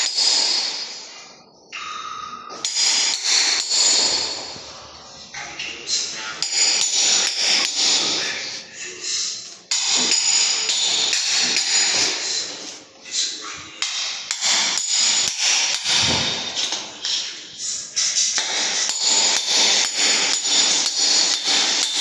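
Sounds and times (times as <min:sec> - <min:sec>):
hammer blows ringing: 0:00.0 - 0:01.2, 0:02.5 - 0:04.8, 0:06.1 - 0:08.4, 0:09.7 - 0:12.7, 0:13.6 - 0:22.0.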